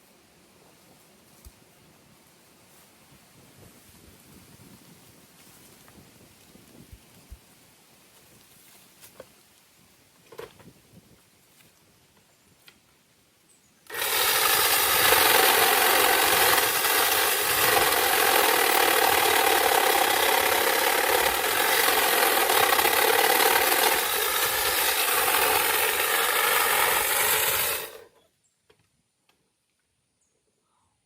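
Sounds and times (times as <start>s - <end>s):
power saw cutting tree limb: 13.9s - 28.2s.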